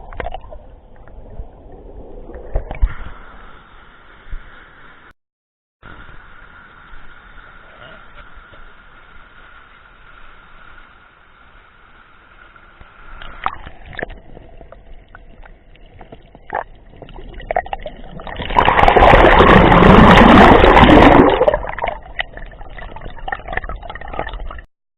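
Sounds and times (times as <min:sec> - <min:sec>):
water splashing and sloshing: 0:00.0 - 0:03.7, 0:12.5 - 0:24.7.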